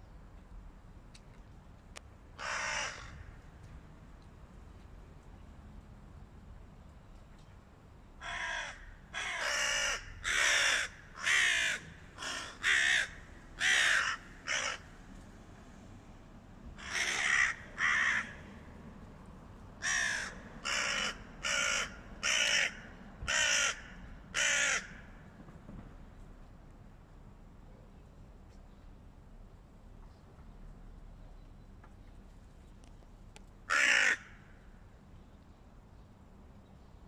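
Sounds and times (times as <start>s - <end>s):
crows cawing harshly: 2.4s - 3.4s, 8.2s - 15.0s, 16.8s - 18.6s, 19.8s - 25.2s, 33.7s - 34.7s.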